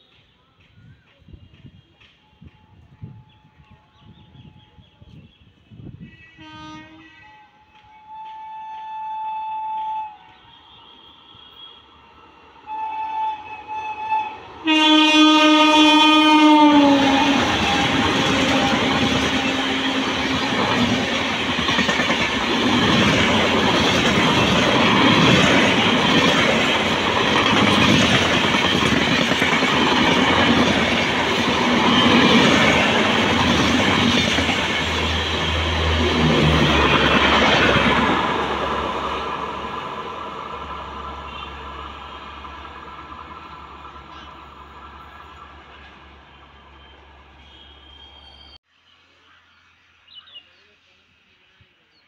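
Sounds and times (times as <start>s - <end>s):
train coaches rushing past: 0.0s - 48.6s
train horn: 2.2s - 5.1s, 5.9s - 21.9s, 41.1s - 42.5s, 46.4s - 48.4s.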